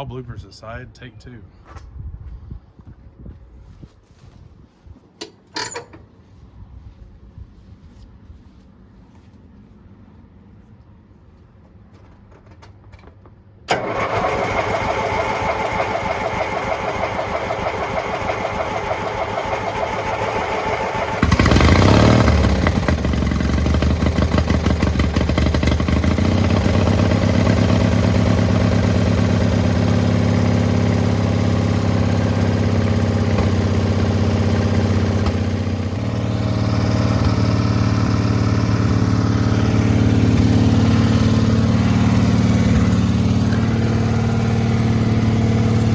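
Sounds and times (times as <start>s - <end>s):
small engine running: 13.7s - 45.9s
starter cranking engine: 13.7s - 45.9s.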